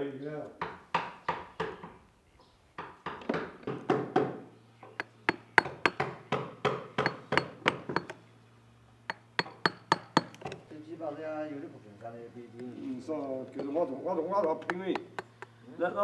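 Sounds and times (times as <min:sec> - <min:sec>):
chisel strikes into wood: 0:00.6 - 0:02.0, 0:02.8 - 0:08.2, 0:09.1 - 0:10.6, 0:13.6 - 0:13.8, 0:14.4 - 0:15.6.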